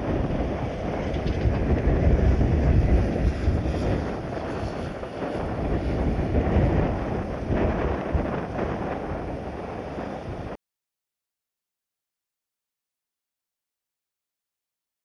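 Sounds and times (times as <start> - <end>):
gusty wind buffeting microphone: 0.0 - 10.6.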